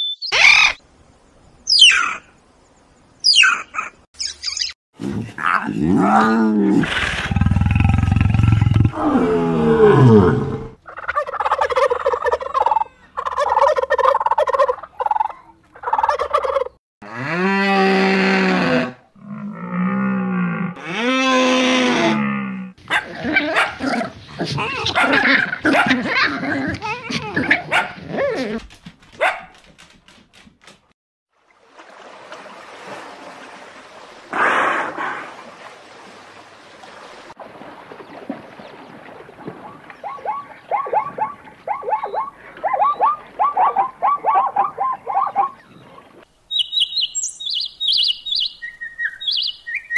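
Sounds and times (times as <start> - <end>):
turkeys gobbling: 10.9 - 16.8, 40.1 - 45.6
rushing water: 31.3 - 41.7.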